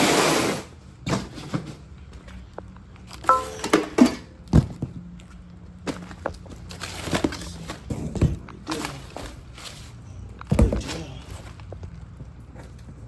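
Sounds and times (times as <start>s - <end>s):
brief metallic ring: 3.3s - 4.3s.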